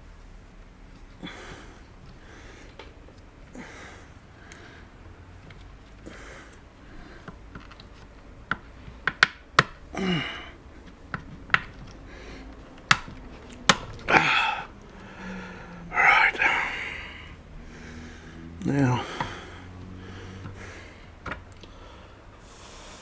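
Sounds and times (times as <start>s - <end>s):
person breathing or sniffing: 14.0s - 23.0s.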